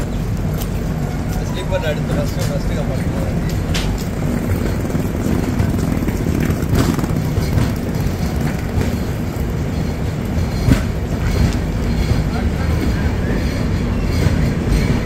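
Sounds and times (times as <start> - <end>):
train coach rumbling: 0.0 - 15.0
wheel clicks on track: 3.5 - 11.7.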